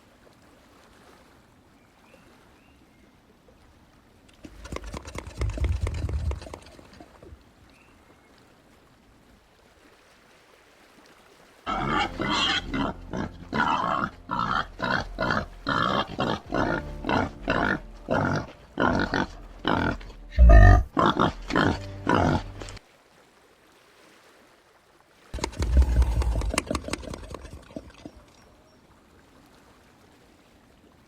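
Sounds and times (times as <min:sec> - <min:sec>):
peccary grunting calls: 0:11.7 - 0:22.8, 0:25.4 - 0:28.2.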